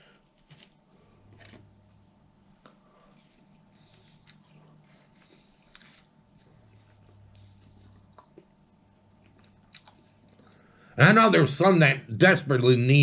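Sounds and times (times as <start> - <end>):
soft chewing: 2.5 - 10.7.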